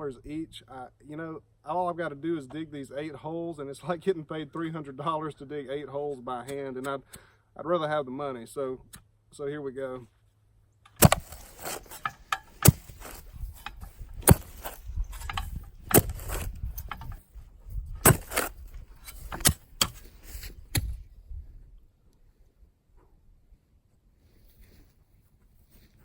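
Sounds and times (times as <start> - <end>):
dirt scraping: 9.8 - 21.2
digging tool striking soil: 10.9 - 21.0.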